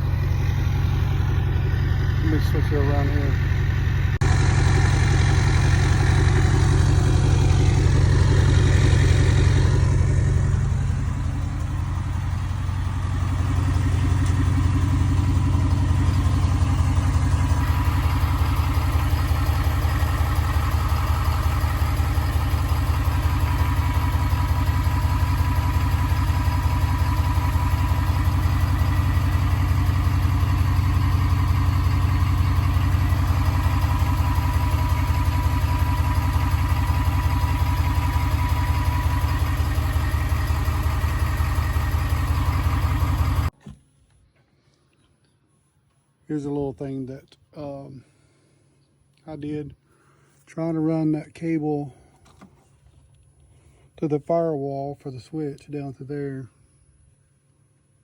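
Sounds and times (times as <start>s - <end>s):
diesel truck engine idling: 0.0s - 43.6s.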